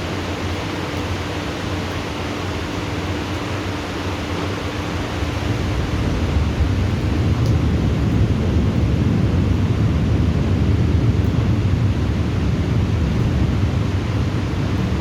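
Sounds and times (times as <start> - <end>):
low rolling thunder: 5.2 - 15.0.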